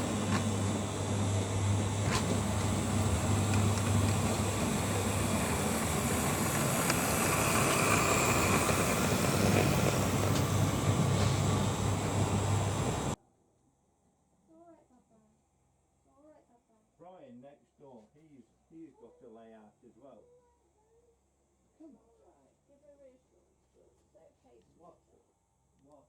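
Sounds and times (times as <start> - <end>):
model train motor hum: 0.0 - 13.2.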